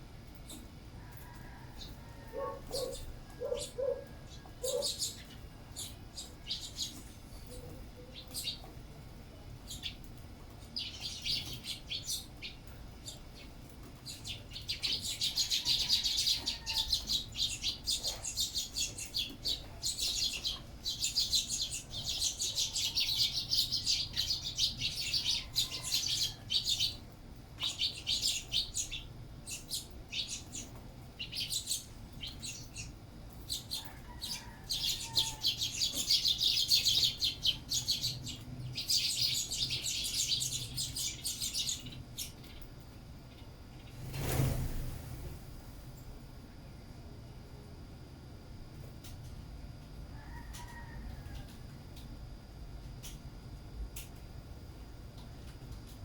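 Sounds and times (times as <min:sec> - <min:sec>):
sparrows chirping: 0:00.3 - 0:08.8, 0:09.5 - 0:44.1.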